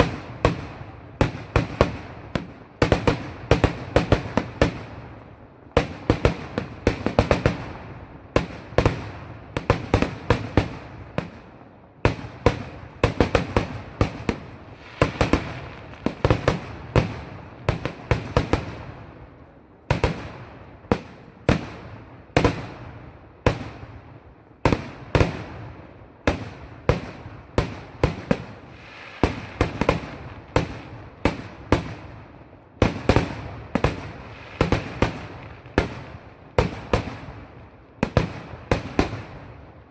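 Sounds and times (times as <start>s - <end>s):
firecracker bangs: 0.0s - 5.0s.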